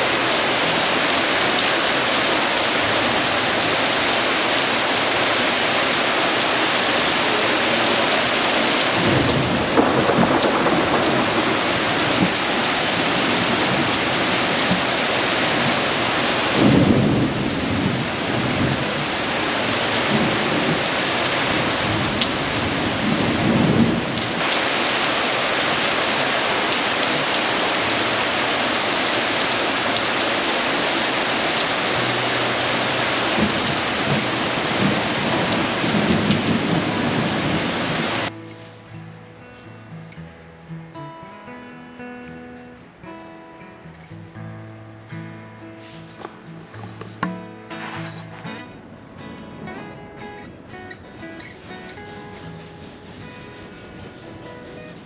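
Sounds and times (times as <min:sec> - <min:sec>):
heavy rain: 0:00.0 - 0:40.8, 0:44.9 - 0:55.0
rolling thunder: 0:08.8 - 0:24.7, 0:32.6 - 0:38.3.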